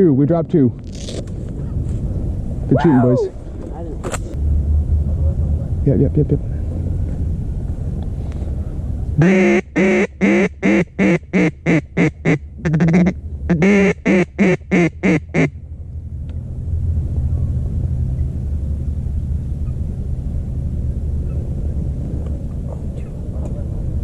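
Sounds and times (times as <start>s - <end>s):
low wind rumble: 0.0s - 24.0s
duck call chatter: 9.2s - 15.5s
duck call quacks: 9.2s - 15.5s.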